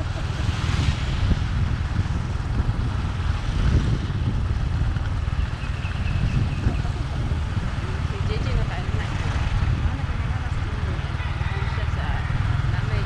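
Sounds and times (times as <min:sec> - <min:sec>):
vehicle rumble and road noise: 0:00.0 - 0:13.0.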